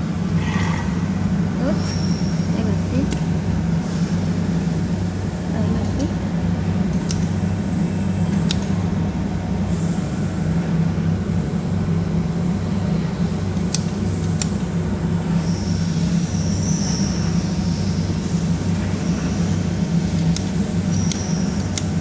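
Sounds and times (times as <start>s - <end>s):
laser welder electrical hum: 0.0s - 22.0s.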